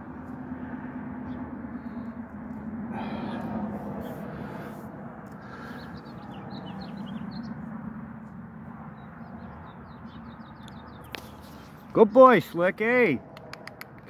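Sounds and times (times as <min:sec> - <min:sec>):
steady low background hum: 0:00.0 - 0:14.0
small birds chirping: 0:03.0 - 0:12.7.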